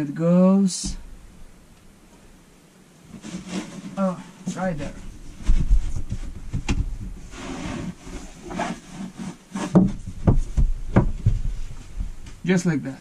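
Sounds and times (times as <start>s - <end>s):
desk top rubbing and scraping: 3.1s - 12.2s
sharp knocks: 5.4s - 7.3s, 9.7s - 12.4s.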